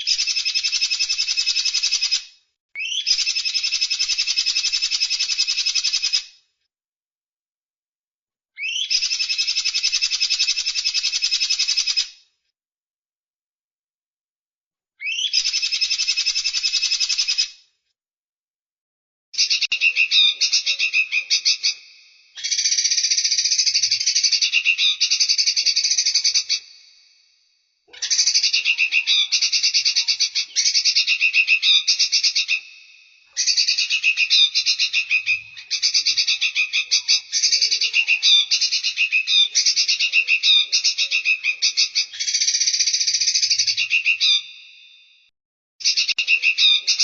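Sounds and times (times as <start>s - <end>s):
songbird trilling: 2.8s - 3.9s, 8.6s - 10.0s, 15.0s - 17.4s, 19.4s - 26.9s, 27.9s - 44.7s.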